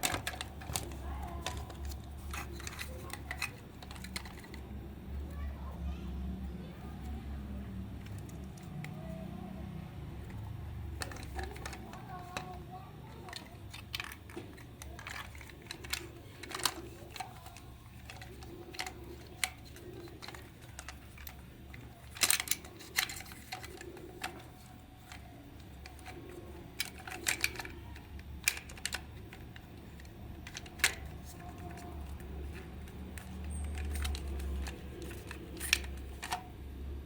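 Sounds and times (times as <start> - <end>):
steady low hum: 0.0 - 37.0
light clicks and taps: 11.0 - 36.5.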